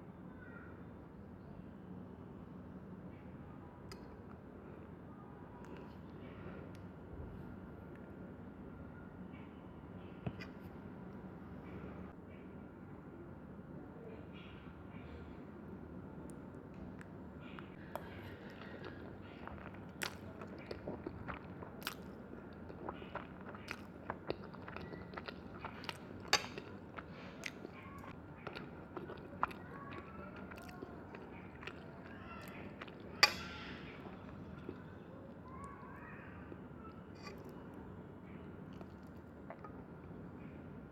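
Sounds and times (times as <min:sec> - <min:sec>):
chewing and biting: 0:18.4 - 0:34.9.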